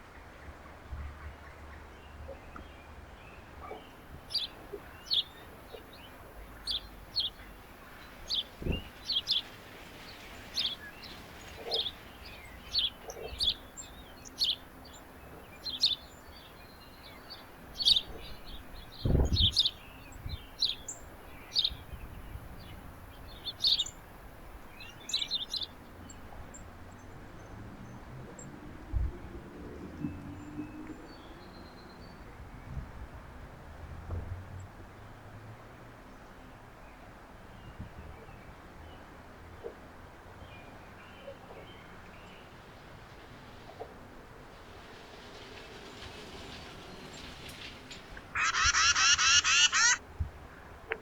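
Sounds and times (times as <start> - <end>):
birds chirping: 3.5 - 27.1, 44.6 - 50.0.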